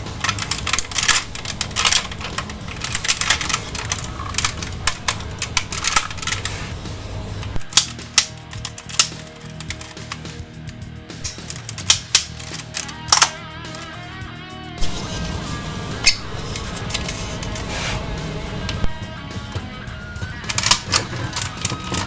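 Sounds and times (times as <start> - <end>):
plastic toy parts clicking: 0.0 - 6.8, 7.4 - 13.9, 20.3 - 22.0
background music: 0.0 - 22.0.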